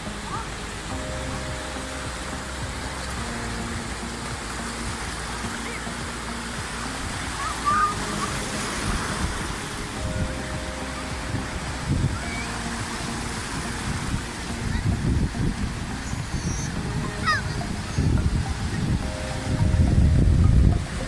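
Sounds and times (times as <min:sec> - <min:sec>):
sea surf washing: 0:00.0 - 0:21.0
faint crowd voices: 0:05.1 - 0:19.9.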